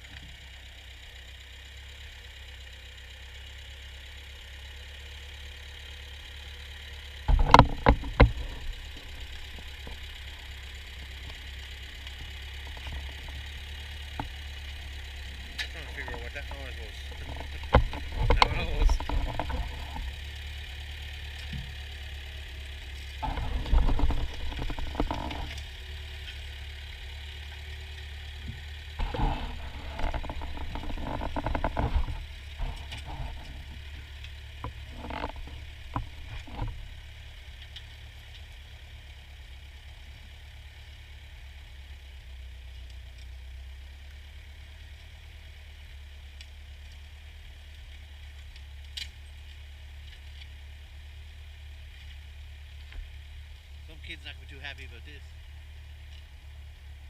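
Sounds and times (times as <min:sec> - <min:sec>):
tractor engine running: 0:00.0 - 0:57.0
engine clattering bursts: 0:05.8 - 0:38.6, 0:53.8 - 0:56.3.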